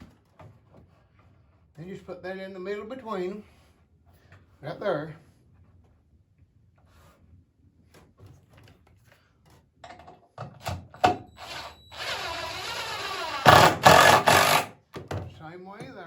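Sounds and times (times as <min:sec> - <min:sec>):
power drill driving screw: 0:11.0 - 0:14.8.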